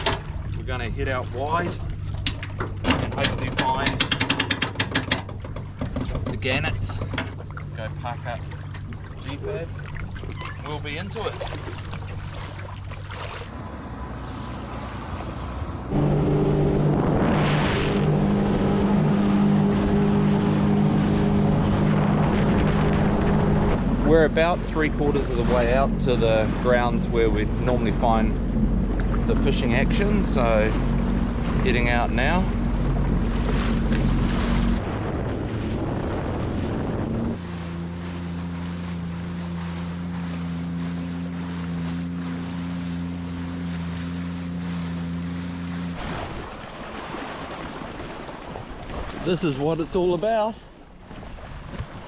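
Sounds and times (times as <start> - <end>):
jet ski engine running: 0.0 - 48.6
water and wind rushing: 0.0 - 52.0
wind on microphone: 13.4 - 37.6.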